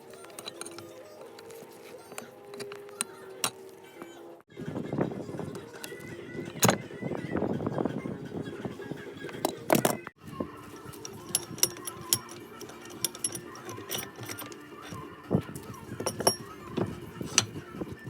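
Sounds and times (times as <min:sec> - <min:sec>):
background music: 0:00.0 - 0:18.0
metallic clinks and knocks on vice: 0:10.8 - 0:15.0, 0:16.0 - 0:17.6.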